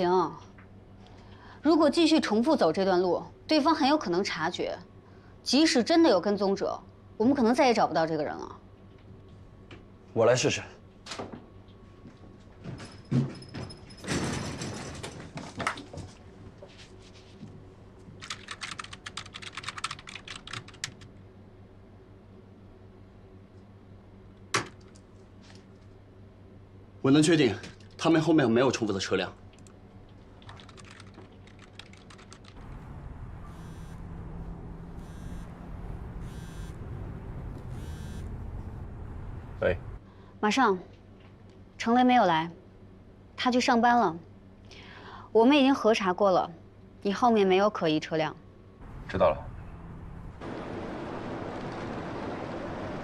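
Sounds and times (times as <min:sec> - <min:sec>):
typing on keyboard: 0:18.2 - 0:21.1, 0:30.4 - 0:32.6
steady low rumble: 0:32.5 - 0:40.2, 0:48.6 - 0:53.0
short electronic buzz: 0:32.7 - 0:38.9.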